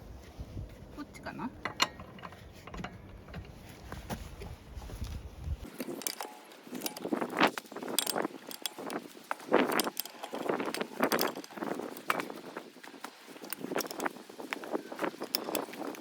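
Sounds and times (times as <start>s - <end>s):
small metal objects clinking: 5.6s - 16.0s.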